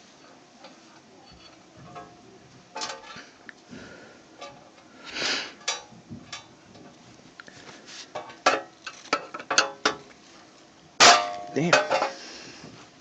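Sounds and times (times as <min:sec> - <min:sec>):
brushing handling noise: 0:07.5 - 0:09.2.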